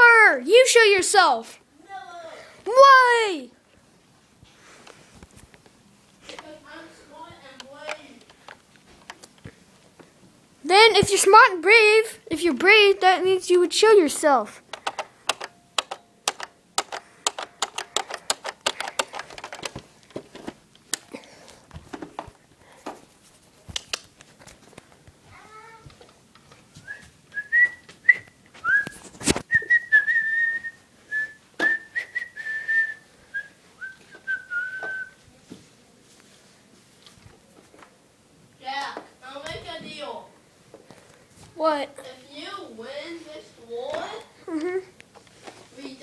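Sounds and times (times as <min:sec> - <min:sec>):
quick clicks and taps: 0:14.7 - 0:21.1
person whistling a tune: 0:26.8 - 0:35.2.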